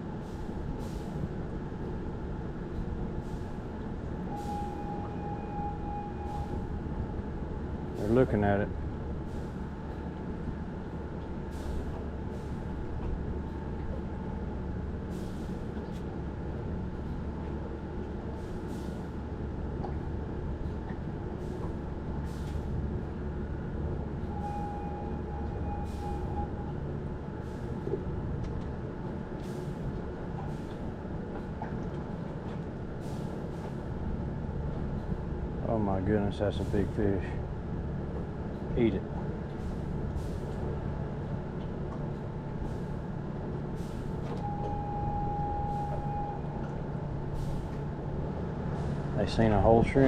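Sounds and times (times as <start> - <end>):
machinery low rumble: 0.0 - 50.0
brief higher tone: 4.3 - 6.6, 24.3 - 26.7, 44.3 - 46.7.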